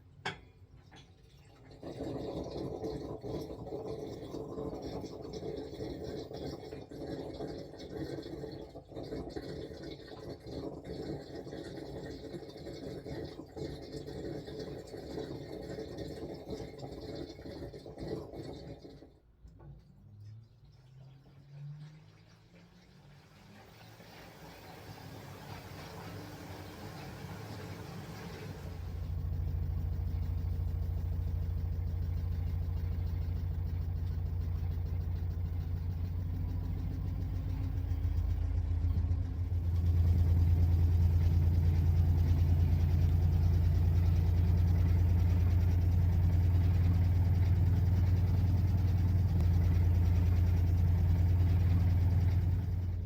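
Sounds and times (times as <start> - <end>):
washing machine motor hum: 20.1 - 53.0.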